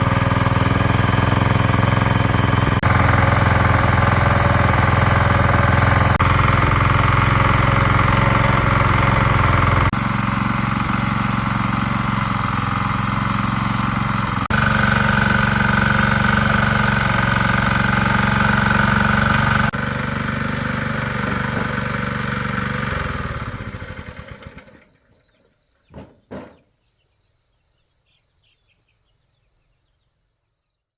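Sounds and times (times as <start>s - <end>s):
small engine running and stopping: 0.0s - 25.0s
brief knocks: 25.9s - 26.7s.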